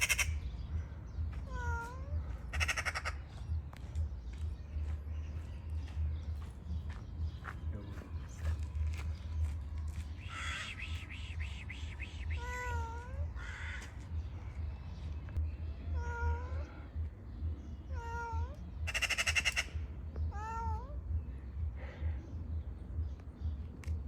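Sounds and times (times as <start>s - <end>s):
steady low rumble: 0.0s - 24.0s
cat meowing: 1.5s - 3.0s, 12.3s - 13.7s, 15.8s - 16.9s, 17.9s - 19.6s, 20.3s - 21.0s.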